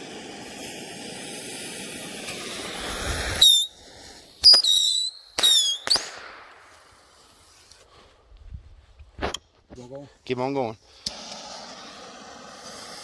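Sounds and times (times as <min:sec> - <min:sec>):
bottle rockets whistling: 0:00.4 - 0:06.6
sharp pops: 0:02.2 - 0:07.3.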